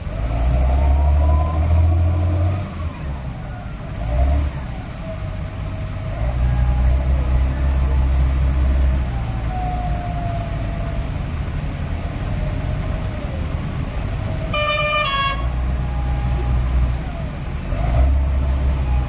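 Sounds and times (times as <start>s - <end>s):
tractor diesel engine running: 0.0s - 19.0s
vehicle horn: 14.5s - 15.7s.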